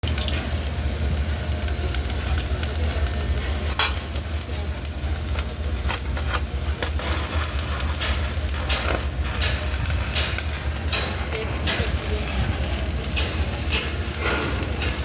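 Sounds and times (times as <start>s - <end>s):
welding arc crackling: 0.0s - 15.0s.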